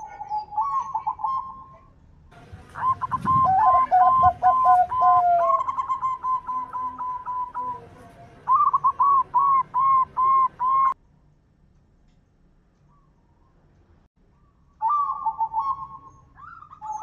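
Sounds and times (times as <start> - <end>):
dove cooing: 0.0 - 11.0, 14.8 - 17.0
lower falling bird notes: 2.6 - 11.0.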